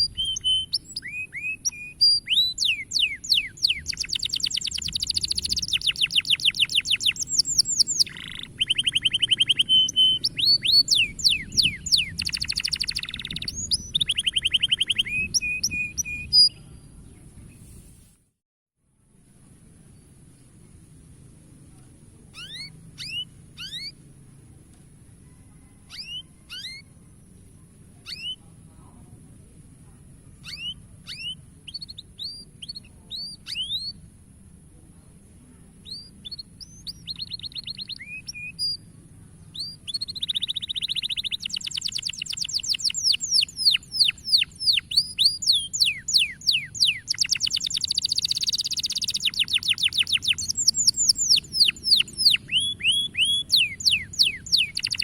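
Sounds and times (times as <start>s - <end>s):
canary singing: 0.0s - 16.7s, 22.3s - 24.0s, 25.6s - 28.4s, 30.4s - 34.1s, 35.8s - 38.9s, 39.5s - 55.0s.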